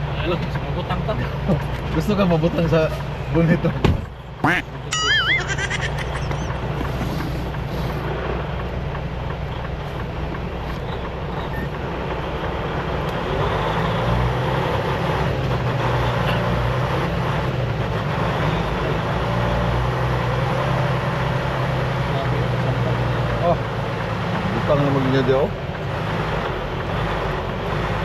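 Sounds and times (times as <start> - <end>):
truck diesel engine running: 0.0 - 28.0.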